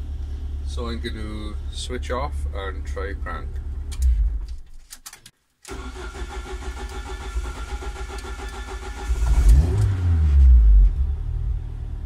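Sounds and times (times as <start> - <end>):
starter motor cranking engine: 5.7 - 9.9
engine starting to fire: 5.7 - 10.4.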